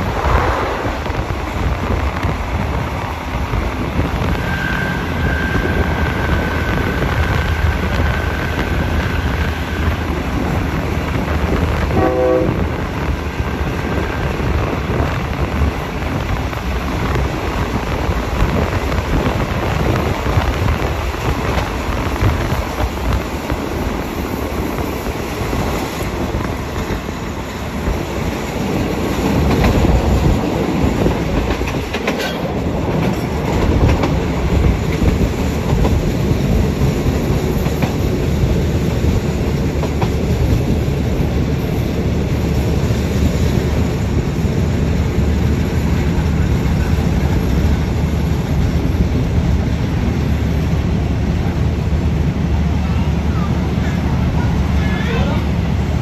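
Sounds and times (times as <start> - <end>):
wind rushing: 0.0 - 4.2
train wheels rumbling on rails: 0.0 - 56.0
train horn toot: 11.9 - 12.8.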